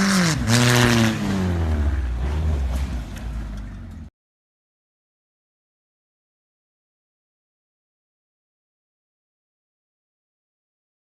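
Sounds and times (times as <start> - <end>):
car engine revving: 0.0 - 4.1
road and tyre noise: 0.0 - 4.1.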